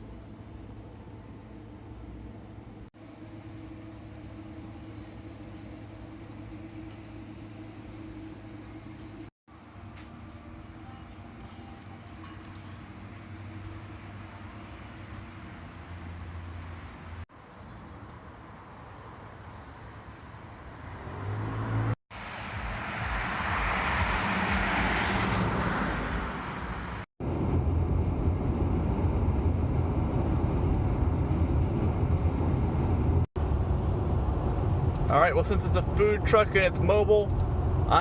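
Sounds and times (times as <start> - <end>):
car rumbling on road: 18.0 - 38.0.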